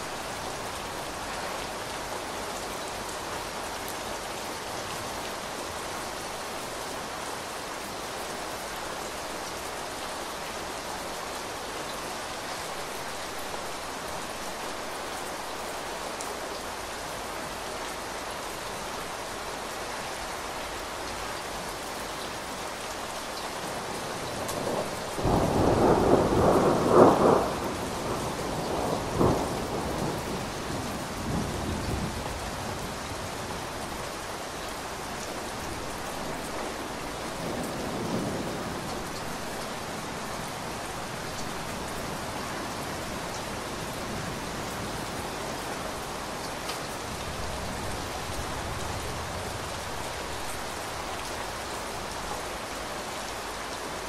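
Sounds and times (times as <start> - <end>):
heavy rain on a window: 0.0 - 54.0
thunder rumbling: 24.6 - 30.5.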